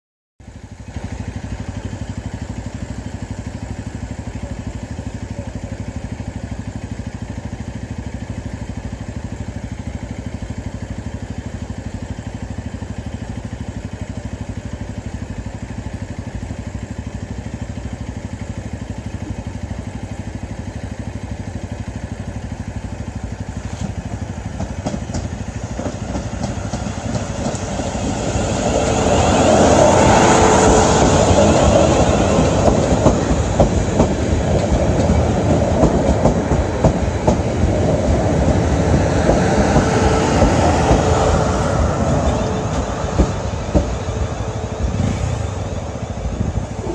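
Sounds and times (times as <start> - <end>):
electric train humming: 0.8 - 46.9
train rattling clatter: 14.4 - 46.9.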